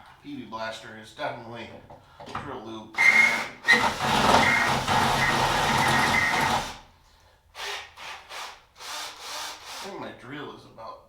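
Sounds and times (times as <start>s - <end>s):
cordless drill drilling steel: 3.0s - 6.9s, 7.6s - 10.0s.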